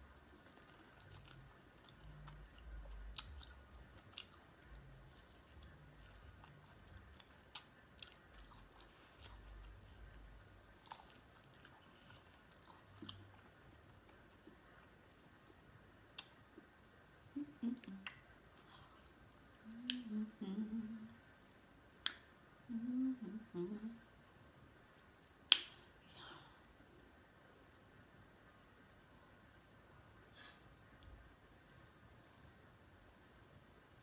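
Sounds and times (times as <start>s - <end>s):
chewing corn on the cob: 0.1s - 16.3s
soft mouth sounds: 17.3s - 21.3s, 22.0s - 24.1s.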